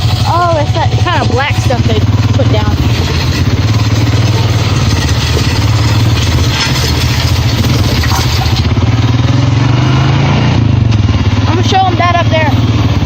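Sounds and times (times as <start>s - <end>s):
machine rattling: 0.0s - 9.4s
atv engine running: 0.0s - 13.0s.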